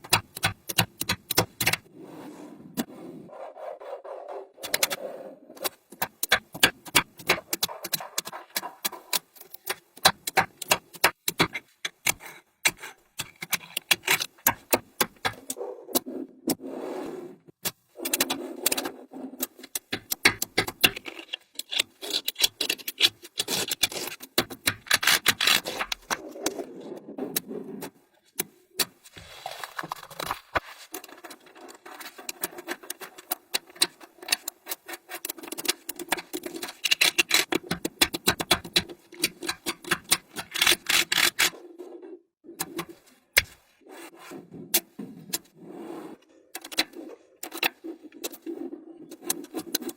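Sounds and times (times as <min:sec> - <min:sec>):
magnetic balls scraping and rolling: 0:12.7 - 0:49.9.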